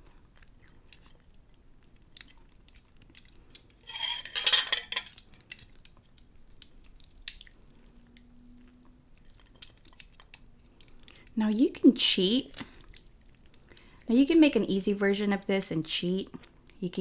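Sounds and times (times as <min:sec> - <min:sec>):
utensils clinking on dishes: 0:02.2 - 0:05.9.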